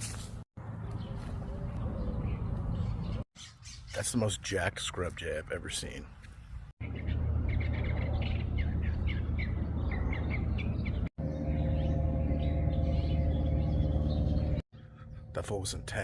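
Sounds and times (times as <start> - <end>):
steady low rumble: 10.9 - 16.0.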